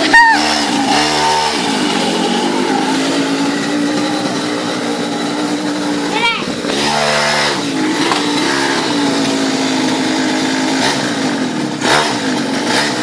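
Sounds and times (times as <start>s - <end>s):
mini motorcycle engine revving: 0.0s - 13.0s.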